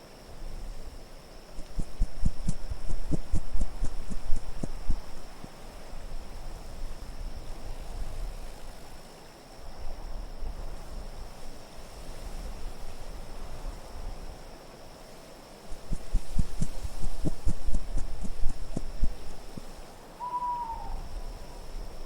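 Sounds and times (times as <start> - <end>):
faint high steady tone: 1.5 - 5.5, 15.7 - 21.8
low thumps: 1.6 - 5.4, 15.7 - 19.7
wind rushing: 1.6 - 5.5, 15.7 - 19.7.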